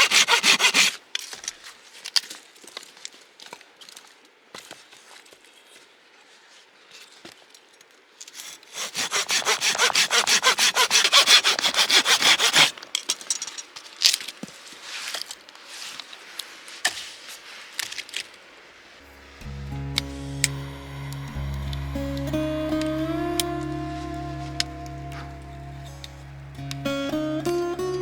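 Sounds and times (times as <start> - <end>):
hand saw cutting wood: 0.0 - 1.0, 8.7 - 13.2.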